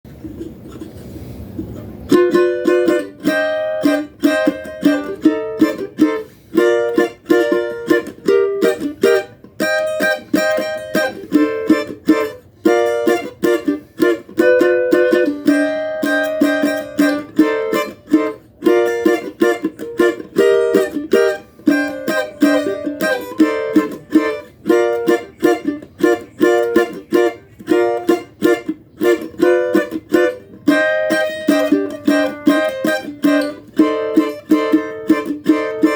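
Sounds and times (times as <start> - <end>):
small guitar strummed chords: 1.6 - 35.9.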